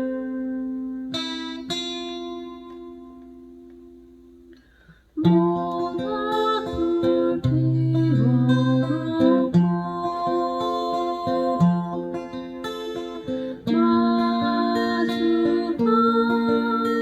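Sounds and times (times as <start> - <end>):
acoustic guitar chords: 0.0 - 17.0
person singing: 5.2 - 17.0.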